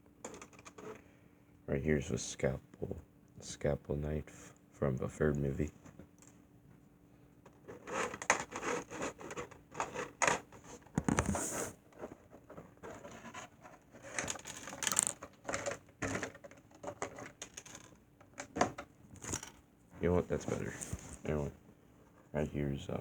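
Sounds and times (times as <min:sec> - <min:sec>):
plastic accessories clicking: 0:14.0 - 0:19.6.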